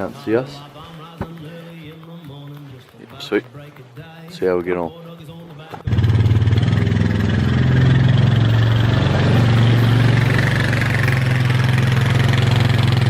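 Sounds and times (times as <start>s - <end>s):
vehicle engine running: 5.8s - 13.0s.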